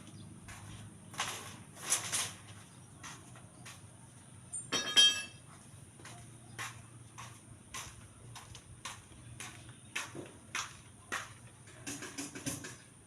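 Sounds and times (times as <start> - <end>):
ringing metallic clink: 4.6 - 5.4.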